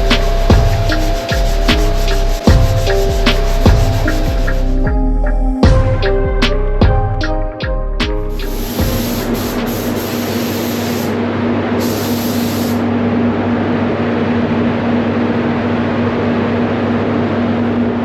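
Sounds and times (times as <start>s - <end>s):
paint spray gun hissing: 0.0s - 4.8s, 8.4s - 11.2s, 11.8s - 12.9s
constant low hum: 0.0s - 11.8s.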